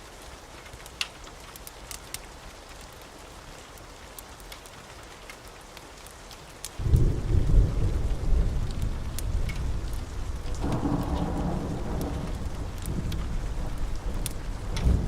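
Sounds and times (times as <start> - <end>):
steady rainfall: 0.0 - 15.0
thunder rumbling: 6.8 - 15.0.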